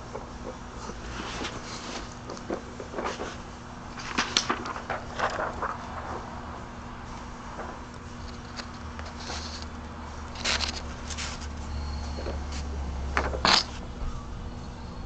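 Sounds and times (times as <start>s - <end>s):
steady low hum: 0.0s - 15.0s
handling clicks and scrapes: 8.2s - 13.8s.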